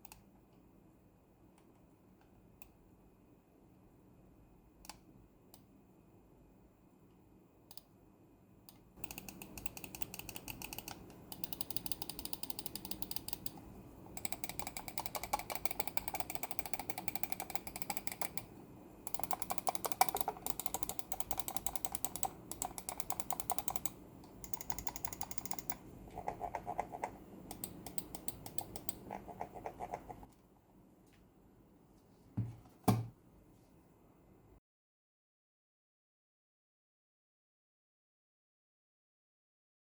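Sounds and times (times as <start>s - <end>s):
mouse clicking rapidly: 9.0s - 13.6s, 14.2s - 18.5s, 19.1s - 30.3s.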